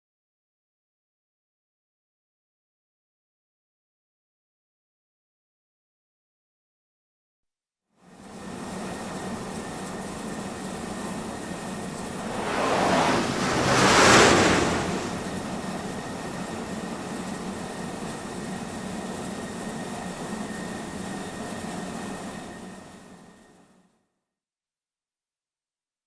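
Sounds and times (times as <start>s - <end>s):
jet engine rushing air: 12.1s - 17.0s.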